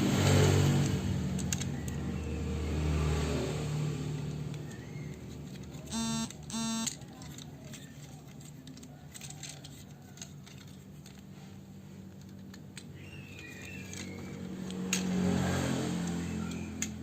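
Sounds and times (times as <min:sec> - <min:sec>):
plastic toy parts clicking: 0:00.8 - 0:02.1, 0:04.2 - 0:11.4, 0:12.1 - 0:15.4, 0:16.0 - 0:17.0
mixed noise: 0:05.8 - 0:07.1.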